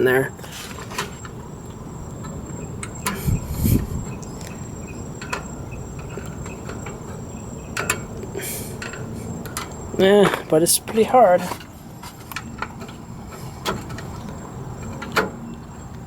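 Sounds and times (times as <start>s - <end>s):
metal brake parts clicking: 0.4s - 16.0s.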